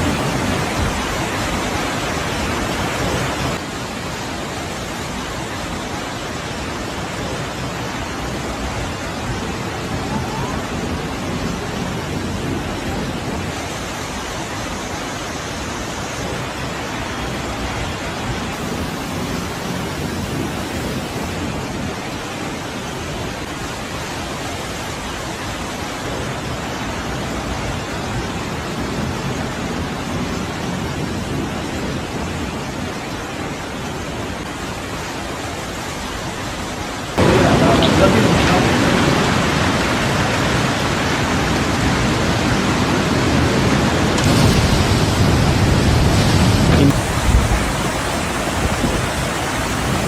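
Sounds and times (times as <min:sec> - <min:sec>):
storm water rushing: 0:00.0 - 0:50.0.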